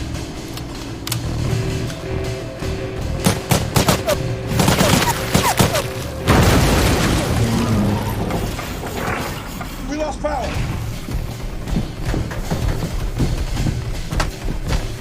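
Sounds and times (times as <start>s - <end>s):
film score music: 0.0s - 15.0s
gunshots: 3.2s - 8.0s.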